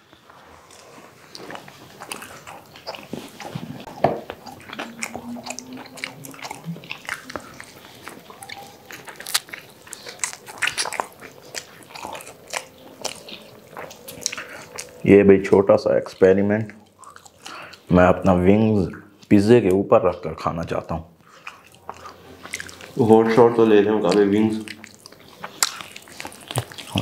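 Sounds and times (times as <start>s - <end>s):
people biting and chewing food: 0.0s - 19.8s, 20.8s - 27.0s.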